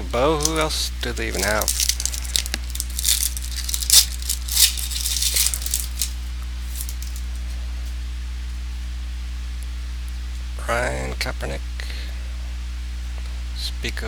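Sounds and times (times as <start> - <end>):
cards and wrappers crinkling: 0.0 - 7.4
low electrical hum: 0.0 - 14.0.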